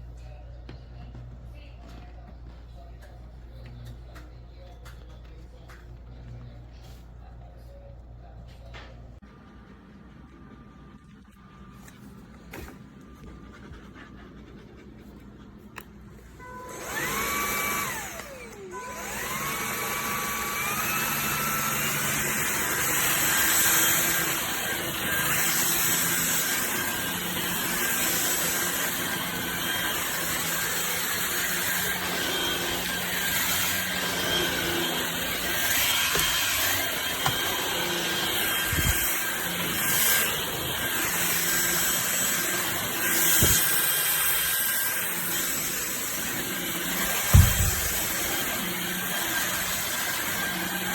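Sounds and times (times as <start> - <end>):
stick vacuum motor whining: 16.4 - 50.9.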